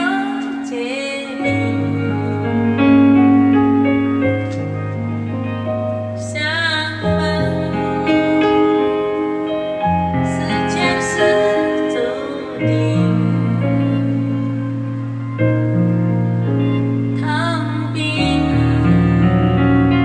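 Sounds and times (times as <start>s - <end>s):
woman singing with vibrato: 0.0s - 3.3s, 6.2s - 15.0s, 17.1s - 20.0s
piano: 0.0s - 20.0s
sustained keyboard chords: 0.0s - 20.0s.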